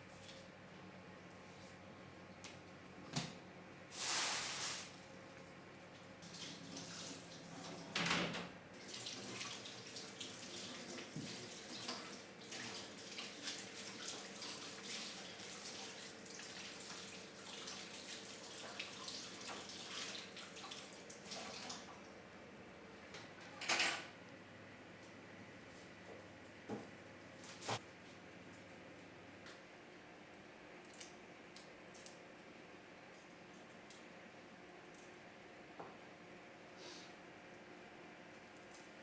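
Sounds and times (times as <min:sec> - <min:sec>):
tap water running into sink: 0:08.8 - 0:21.9.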